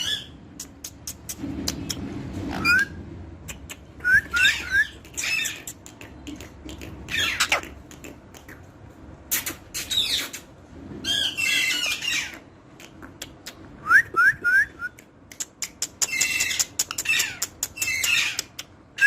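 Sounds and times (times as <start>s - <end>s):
parrot squawking: 0.0s - 0.4s, 2.4s - 8.2s, 9.3s - 12.5s, 15.9s - 19.0s.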